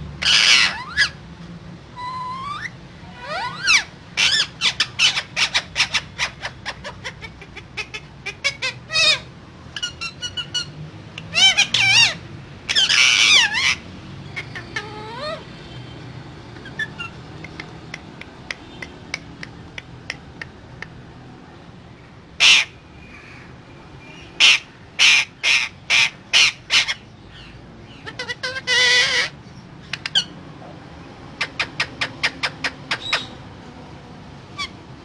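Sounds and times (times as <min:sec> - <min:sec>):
parakeet harsh squawks: 0:00.2 - 0:01.2, 0:02.0 - 0:15.5, 0:22.4 - 0:22.8, 0:24.3 - 0:29.4, 0:34.6 - 0:34.8
parakeets warbling calls: 0:00.2 - 0:01.3, 0:01.9 - 0:17.8, 0:22.3 - 0:30.4, 0:31.3 - 0:33.5, 0:34.5 - 0:34.9.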